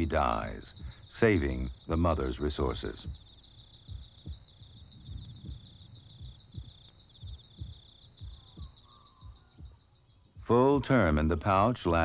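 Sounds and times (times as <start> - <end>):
soft low thumps: 0.0 - 11.0
insects chirring: 0.0 - 12.0.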